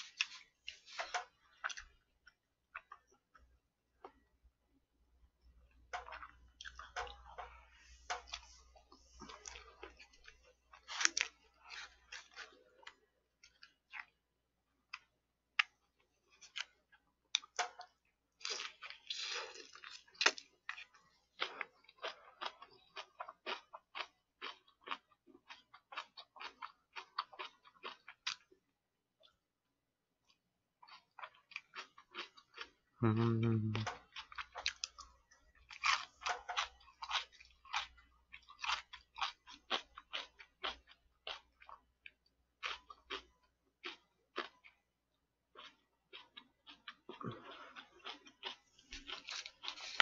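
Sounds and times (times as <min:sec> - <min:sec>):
person chewing food: 0:00.0 - 0:50.0.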